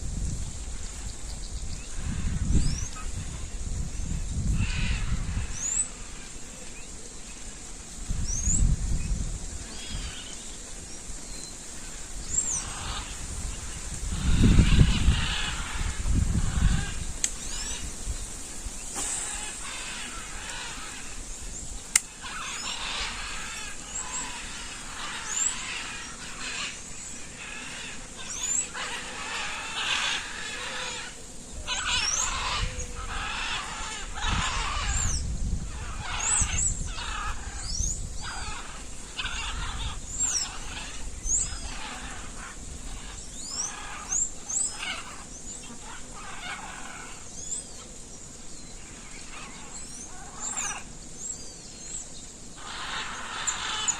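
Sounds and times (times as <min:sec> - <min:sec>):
wild animal calls: 0:52.6 - 0:53.9.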